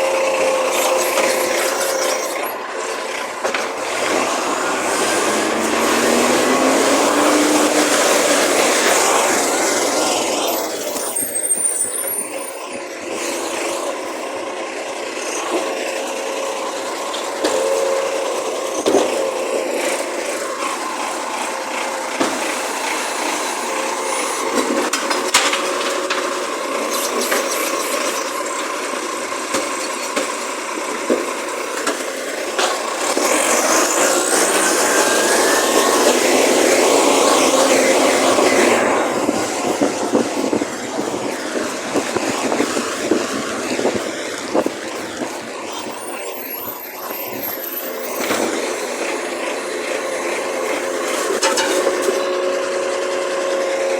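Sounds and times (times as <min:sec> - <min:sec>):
garbage truck running: 0:00.0 - 0:53.9
mechanical whine: 0:32.6 - 0:53.9.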